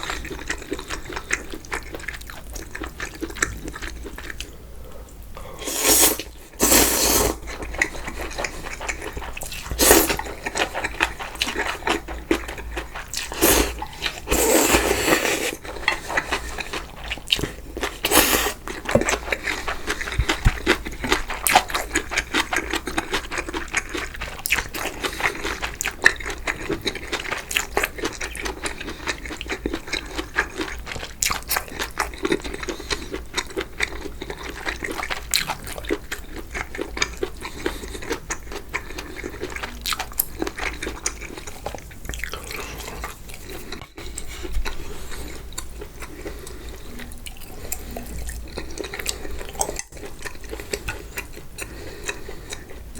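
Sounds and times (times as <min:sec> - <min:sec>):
chewing: 0:00.0 - 0:52.9
slurping noodles: 0:05.6 - 0:12.0, 0:12.9 - 0:22.0.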